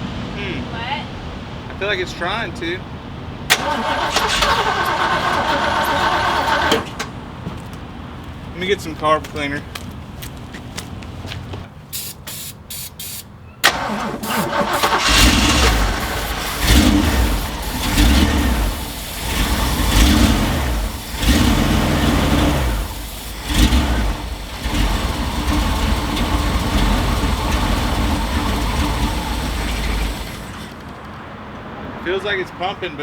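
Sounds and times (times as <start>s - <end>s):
engine cranking on starter: 3.5s - 7.4s, 13.6s - 31.2s
engine firing in uneven surges: 3.5s - 9.6s, 13.7s - 31.3s.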